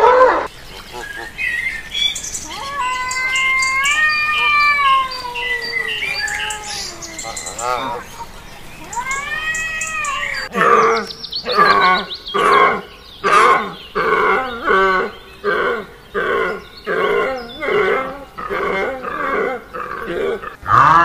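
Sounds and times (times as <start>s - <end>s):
cat meowing: 2.4s - 8.0s, 8.8s - 10.5s.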